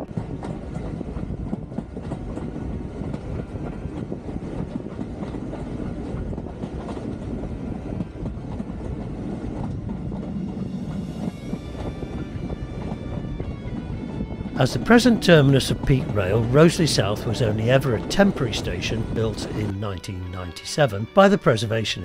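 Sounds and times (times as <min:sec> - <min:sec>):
train rumbling on rails: 0:00.0 - 0:22.0
wheels clicking over rail joints: 0:00.1 - 0:10.6.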